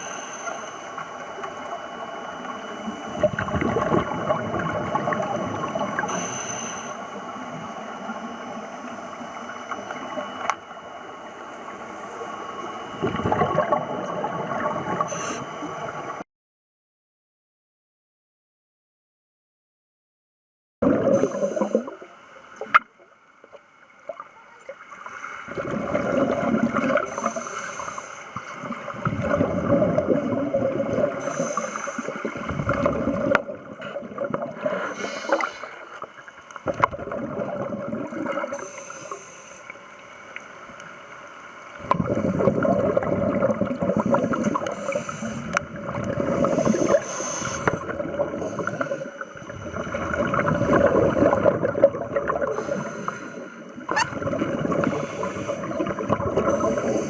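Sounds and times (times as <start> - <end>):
bubbles gurgling underwater: 2.5 - 6.1, 12.4 - 15.1, 20.8 - 22.8, 25.4 - 27.3, 28.5 - 34.9, 36.6 - 38.6, 41.8 - 57.0.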